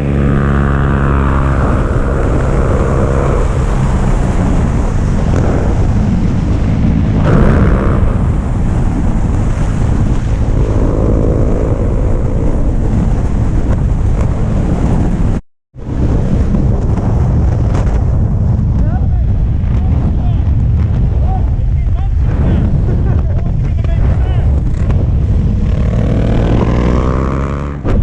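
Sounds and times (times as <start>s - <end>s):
motorcycle engine: 0.0s - 14.5s, 24.6s - 28.0s
wind buffeting microphone: 0.0s - 28.0s.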